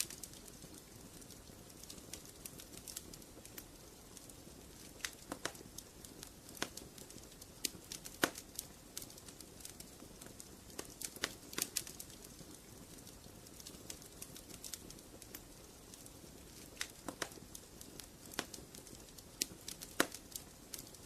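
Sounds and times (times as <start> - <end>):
soft low hiss: 0.0 - 21.0
wood fire crackling: 0.0 - 21.0.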